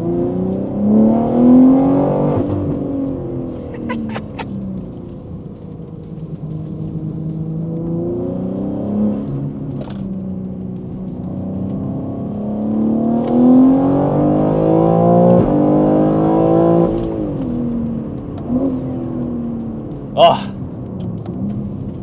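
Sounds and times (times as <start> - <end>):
car engine accelerating: 0.0 - 22.0
exhaust crack: 0.0 - 22.0.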